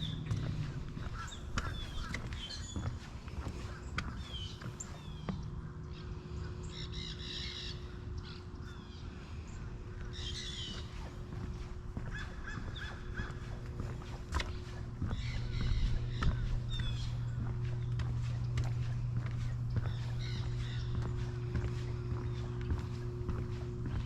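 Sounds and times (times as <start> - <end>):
birds chirping: 0.0 - 24.0
faint low hum: 0.0 - 24.0
crow-like caws: 1.0 - 2.5, 12.1 - 13.6.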